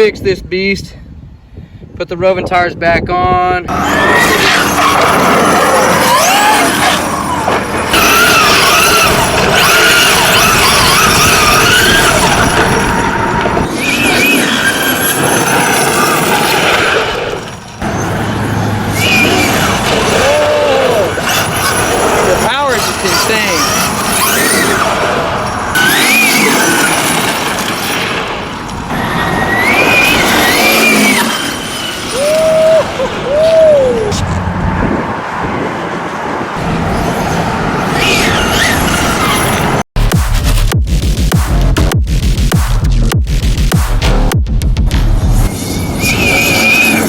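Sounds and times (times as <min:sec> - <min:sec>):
tyre and road noise: 0:03.6 - 0:47.0
electric motor whining: 0:03.7 - 0:13.9.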